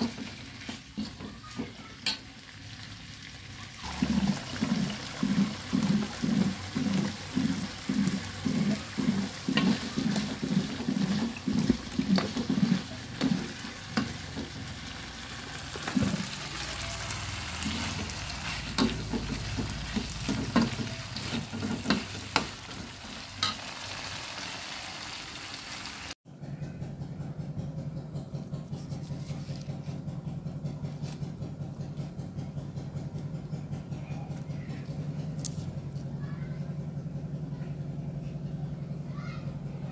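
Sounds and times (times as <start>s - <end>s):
food sizzling: 0.0s - 26.2s
rhythmic stirring in a pan: 3.8s - 24.0s.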